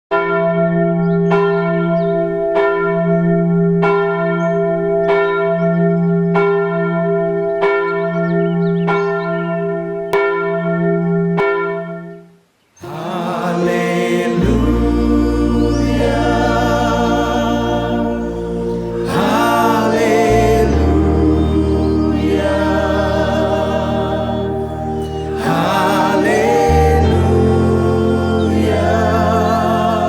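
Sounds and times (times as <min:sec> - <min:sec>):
church bell tolling: 0:00.2 - 0:09.2
music: 0:12.9 - 0:30.0.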